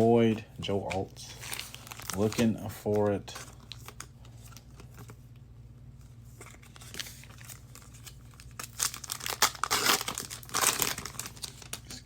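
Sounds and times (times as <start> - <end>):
foil wrapper crinkling: 0.0 - 5.2, 6.4 - 12.0
low steady hum: 0.0 - 12.0
cards rustling and clicking: 0.2 - 5.2.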